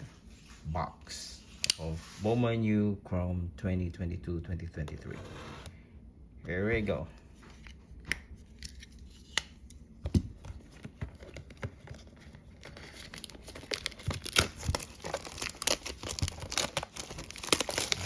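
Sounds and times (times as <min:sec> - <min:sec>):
packaging tearing and crinkling: 0:11.1 - 0:18.0.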